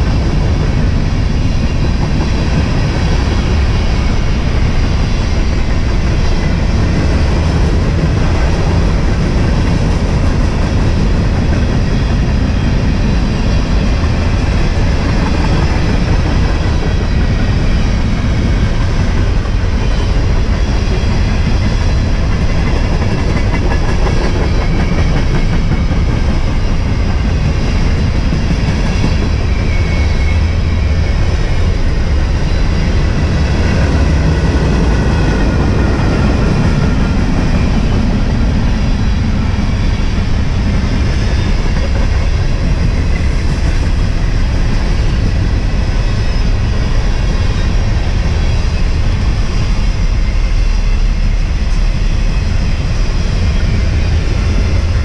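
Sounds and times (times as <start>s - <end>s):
train wheels on rails: 0.0s - 55.0s.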